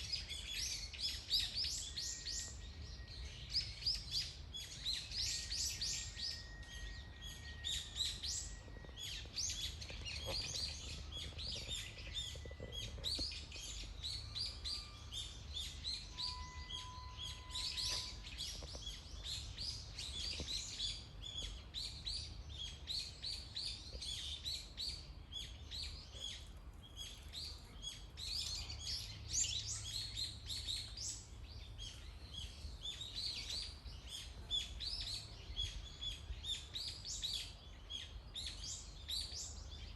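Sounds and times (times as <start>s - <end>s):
forest birds chirping: 0.0s - 39.9s
whistled bird notes: 13.7s - 19.5s.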